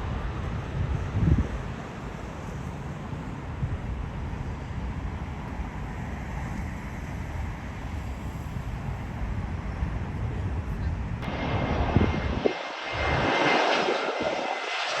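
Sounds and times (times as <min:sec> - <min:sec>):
wind buffeting microphone: 0:00.0 - 0:15.0
steady rumble: 0:11.2 - 0:15.0.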